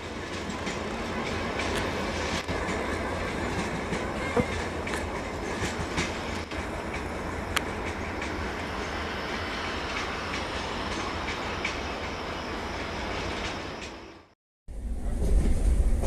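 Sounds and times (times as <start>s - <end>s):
rumble of train wheels on rail: 0.0s - 16.0s.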